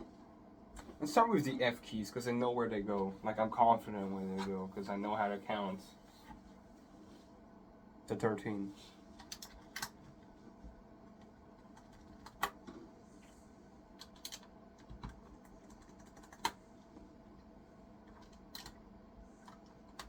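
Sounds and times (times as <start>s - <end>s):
keycaps clicking onto keyboard: 14.0s - 16.6s, 18.1s - 18.8s.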